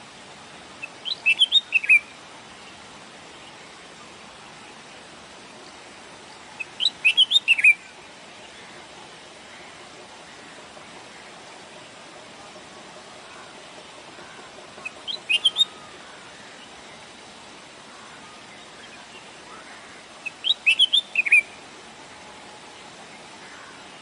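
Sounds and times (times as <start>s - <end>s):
bird chirping: 0.8s - 2.8s, 6.3s - 8.6s, 14.2s - 17.1s, 20.2s - 21.6s.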